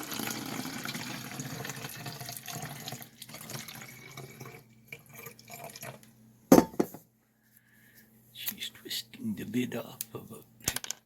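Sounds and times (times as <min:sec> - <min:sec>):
water pouring into a jug: 0:00.0 - 0:06.1.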